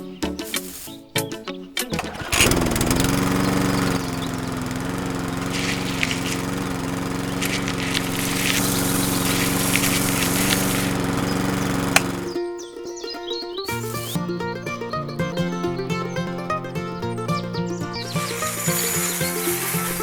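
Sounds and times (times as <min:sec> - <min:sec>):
light rattling clicks: 0:01.8 - 0:12.4
small motor machine droning: 0:02.0 - 0:12.4, 0:15.3 - 0:20.0.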